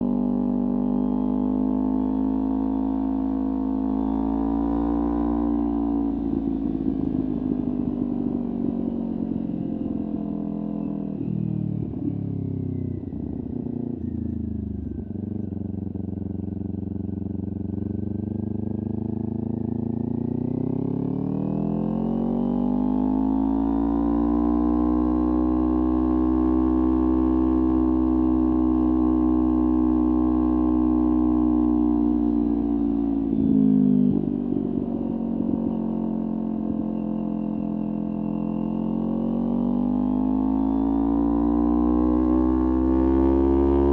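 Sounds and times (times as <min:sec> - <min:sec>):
motorcycle engine revving: 0:13.2 - 0:43.9.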